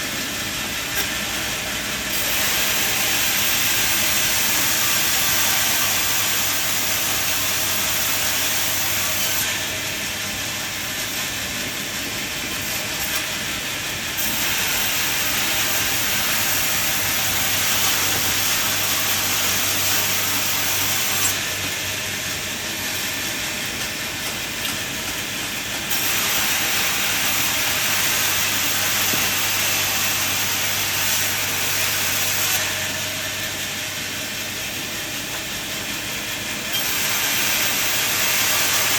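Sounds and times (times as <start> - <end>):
sawmill machinery humming: 0.0 - 38.9
saw hissing through timber: 1.0 - 23.2, 25.6 - 38.9.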